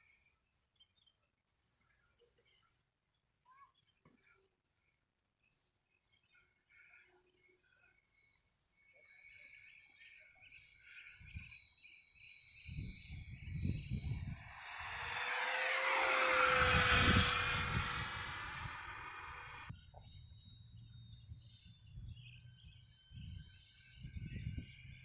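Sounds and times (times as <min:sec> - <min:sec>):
model jet whine: 0:12.8 - 0:19.7.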